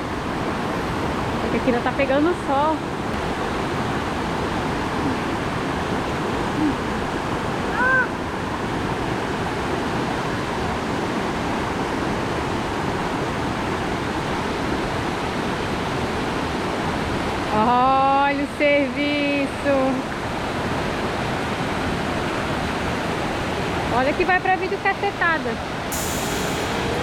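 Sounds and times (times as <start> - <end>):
waterfall rushing: 0.0 - 17.1, 25.7 - 27.0.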